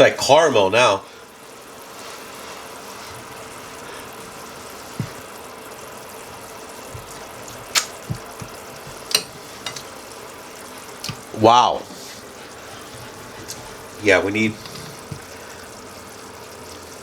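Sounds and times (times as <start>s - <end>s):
glaze bubbling in a pan: 0.0s - 17.0s
soft knocks: 4.9s - 5.3s, 8.0s - 9.1s.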